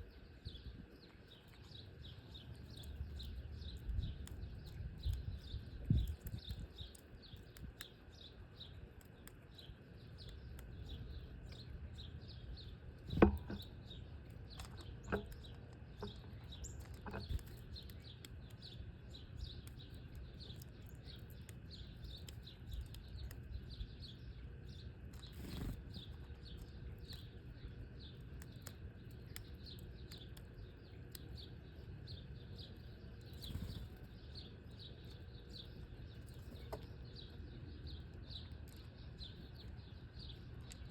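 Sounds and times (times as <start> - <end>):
small birds chirping: 0.0 - 40.9
sharp knocks: 13.2 - 13.6.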